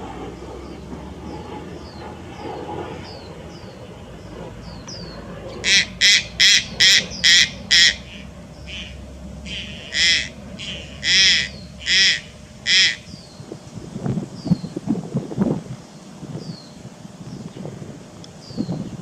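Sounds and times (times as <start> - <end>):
heron harsh squawks: 5.6 - 13.2.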